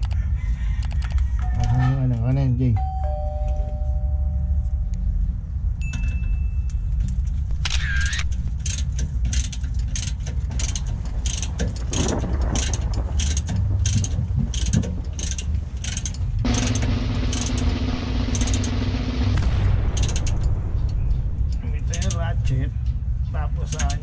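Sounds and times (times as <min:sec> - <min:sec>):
steady low rumble: 0:02.4 - 0:24.0
ratchet wrench clicking: 0:07.7 - 0:17.5.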